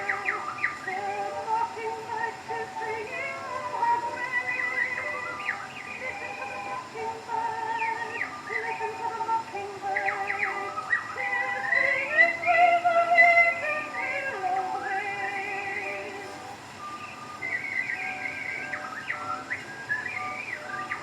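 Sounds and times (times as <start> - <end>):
whistled bird imitations: 0.0 - 1.0, 3.6 - 6.9, 7.8 - 9.0, 9.9 - 15.0, 16.8 - 21.0
record surface hiss: 0.0 - 21.0
small orchestra on old record: 0.0 - 21.0.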